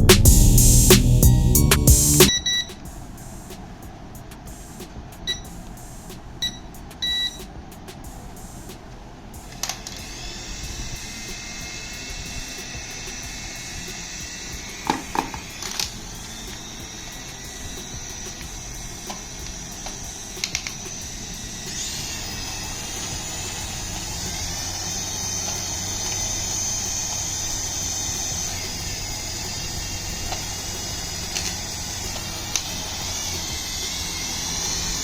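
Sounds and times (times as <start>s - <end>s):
toy electric motor whining: 9.6s - 35.0s.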